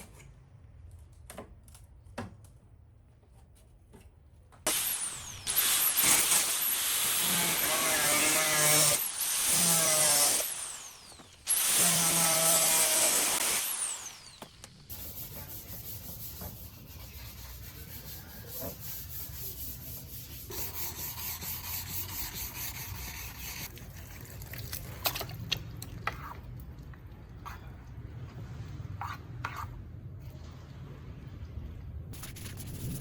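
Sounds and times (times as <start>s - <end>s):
hand sanding strokes: 14.9s - 23.7s.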